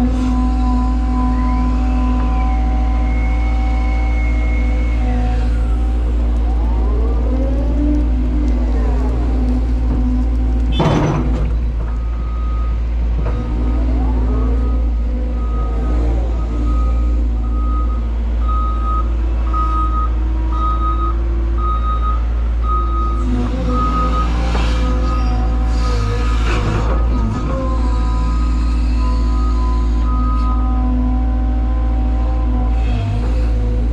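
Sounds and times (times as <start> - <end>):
hydraulic whines: 0.0 - 18.0, 23.1 - 33.9
excavator diesel engine: 0.0 - 33.9
heavy clunk: 9.9 - 12.4.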